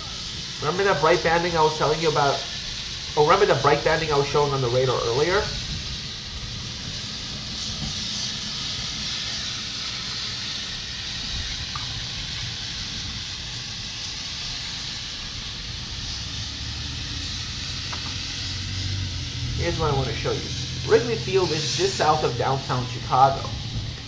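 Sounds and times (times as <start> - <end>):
rain: 0.0 - 24.0
low rumble: 15.5 - 24.0
wind on microphone: 23.5 - 24.0.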